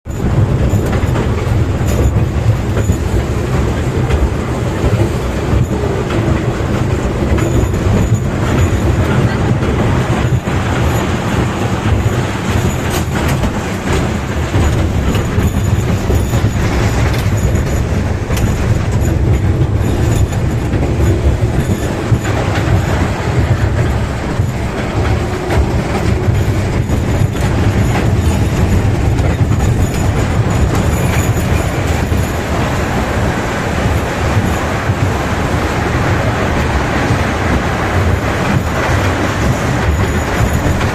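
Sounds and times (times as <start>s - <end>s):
train rumbling on track: 0.0s - 40.9s
wheels clicking over rail joints: 0.1s - 40.9s.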